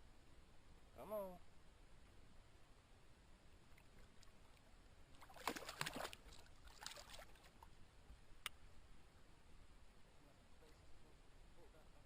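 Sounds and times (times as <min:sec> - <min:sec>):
fish splashing at water surface: 0:05.2 - 0:07.6.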